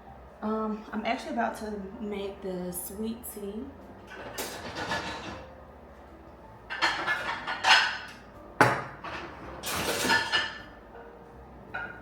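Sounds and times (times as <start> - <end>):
dishes and pots clattering: 4.1 - 5.5, 6.7 - 10.7, 11.7 - 12.0.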